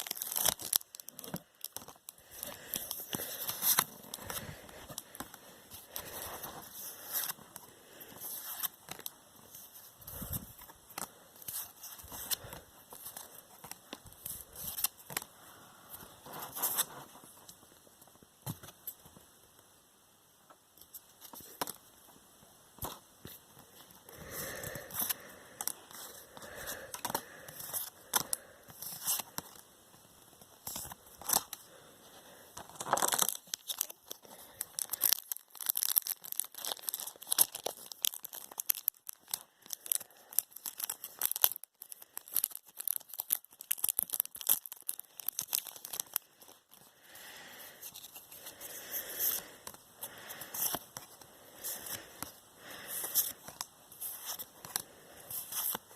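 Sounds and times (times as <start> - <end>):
packaging tearing and crinkling: 0.0 - 5.0, 32.6 - 46.8.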